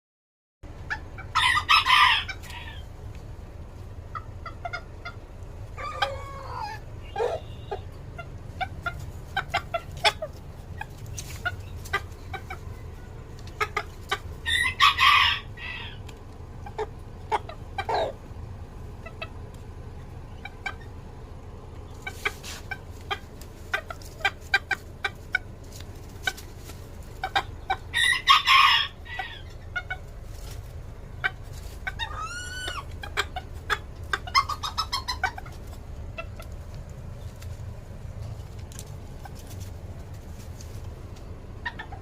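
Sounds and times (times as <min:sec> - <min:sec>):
chickens clucking: 0:00.7 - 0:42.0
steady low hum: 0:00.7 - 0:42.0
loud harsh chicken call: 0:01.3 - 0:02.9, 0:05.8 - 0:07.9, 0:14.4 - 0:16.0, 0:27.9 - 0:29.5, 0:32.0 - 0:32.9
rooster crow: 0:01.3 - 0:02.9, 0:05.8 - 0:07.5, 0:14.5 - 0:16.0, 0:27.9 - 0:29.5.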